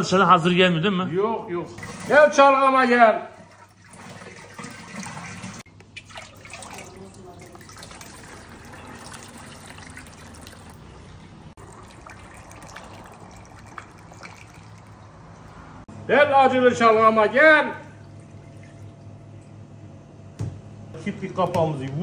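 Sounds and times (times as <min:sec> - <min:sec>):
liquid trickling into a container: 0:03.3 - 0:15.8, 0:17.6 - 0:19.6.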